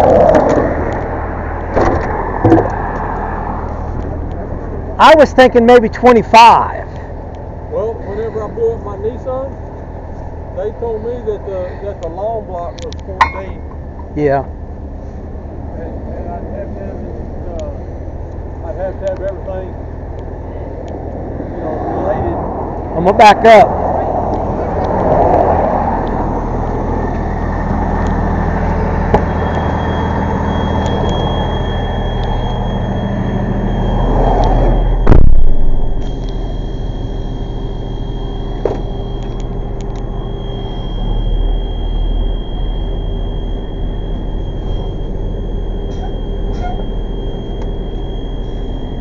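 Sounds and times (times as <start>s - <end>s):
steady high-pitched tone: 0.0s - 6.9s, 7.6s - 49.0s
tow truck engine running: 0.0s - 49.0s
loud thump: 1.7s - 2.7s, 35.0s - 35.8s, 38.6s - 38.9s.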